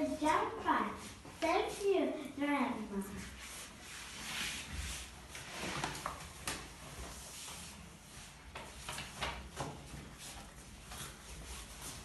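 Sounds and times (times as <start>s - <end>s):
rustles of handling objects: 2.8s - 12.0s.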